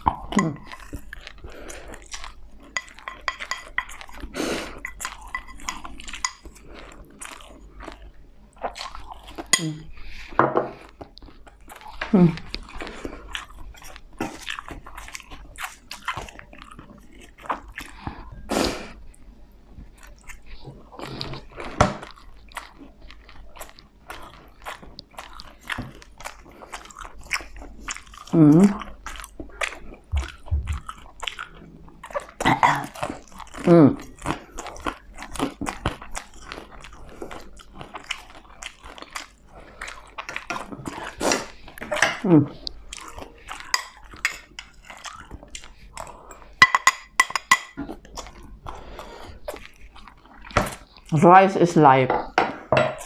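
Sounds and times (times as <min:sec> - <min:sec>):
chewing crispy food: 0:00.0 - 0:52.8
person making vocal sounds: 0:00.2 - 0:00.7, 0:09.6 - 0:09.9, 0:12.0 - 0:12.5, 0:28.3 - 0:28.9, 0:33.6 - 0:34.0, 0:41.9 - 0:42.6.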